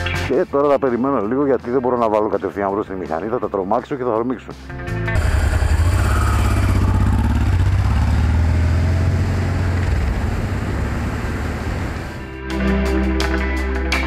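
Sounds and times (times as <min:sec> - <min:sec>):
motorcycle engine idling: 0:05.2 - 0:08.2.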